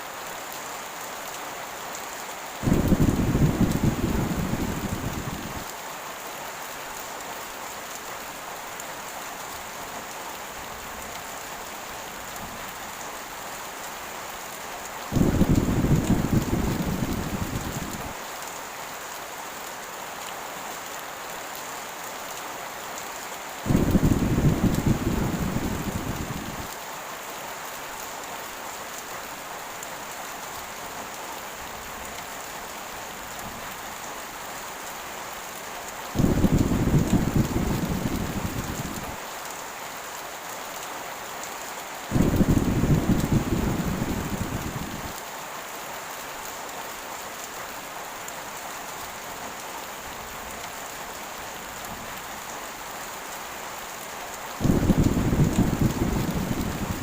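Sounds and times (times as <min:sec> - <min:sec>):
heavy rain falling: 0:00.0 - 0:57.0
thunder rolling: 0:02.6 - 0:05.6, 0:15.1 - 0:18.1, 0:23.7 - 0:26.7, 0:36.2 - 0:39.2, 0:42.1 - 0:45.2, 0:54.6 - 0:57.0.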